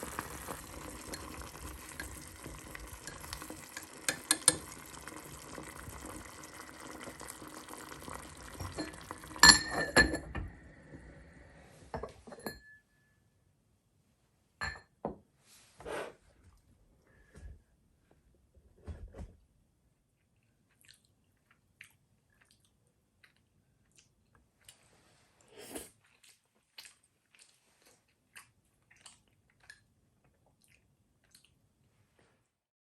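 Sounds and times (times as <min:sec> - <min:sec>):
glass and dishes clinking: 0:01.0 - 0:04.8, 0:08.6 - 0:10.5, 0:12.0 - 0:12.8, 0:14.6 - 0:14.9.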